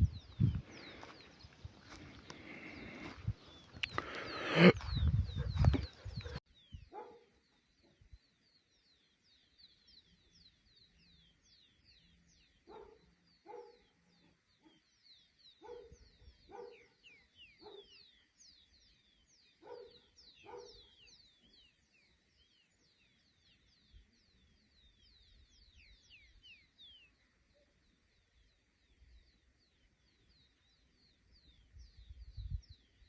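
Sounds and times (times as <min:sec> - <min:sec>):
shorter lower animal calls: 0:02.0 - 0:06.4.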